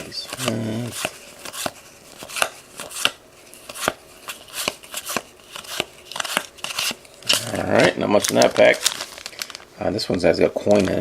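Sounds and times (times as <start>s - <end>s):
trading cards flipped snapping: 0.3s - 7.5s.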